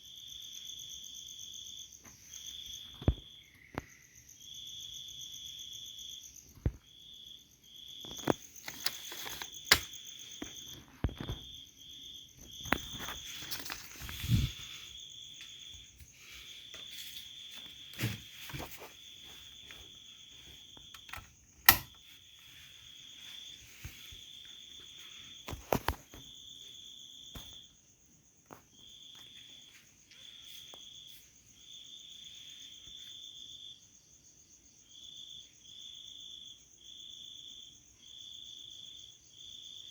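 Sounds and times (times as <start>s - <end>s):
insects trilling: 0.0s - 39.9s
sharp clicks and knocks: 8.2s - 11.4s, 20.9s - 22.0s.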